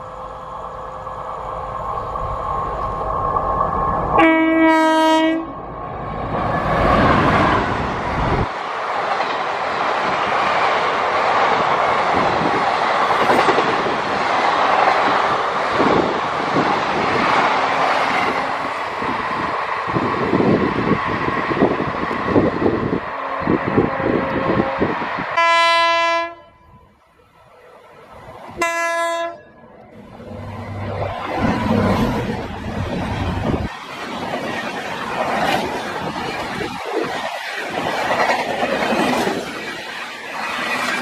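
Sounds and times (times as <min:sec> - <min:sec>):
train coaches rushing past: 0:00.0 - 0:41.0
train horn: 0:04.2 - 0:05.6, 0:23.2 - 0:27.0, 0:28.6 - 0:29.6.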